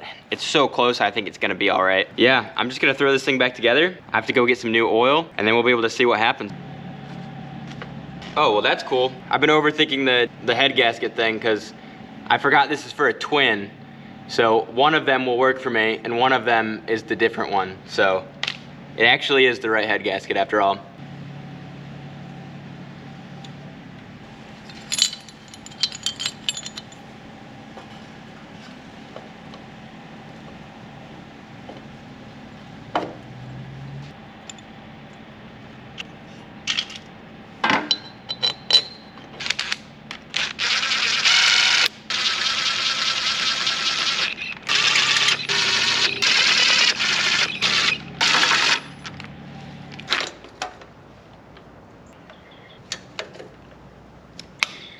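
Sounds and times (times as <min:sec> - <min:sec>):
metal tool clinks and knocks: 0:24.6 - 0:27.1, 0:37.8 - 0:39.2.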